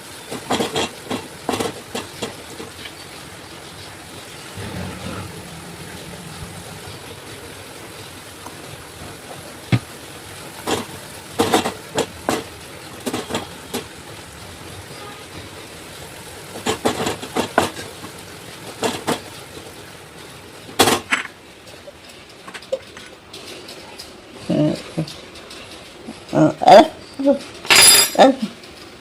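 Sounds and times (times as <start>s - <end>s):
steady background noise: 0.0s - 29.0s
knocks and clatters: 0.3s - 14.0s, 16.4s - 19.8s, 20.7s - 24.2s.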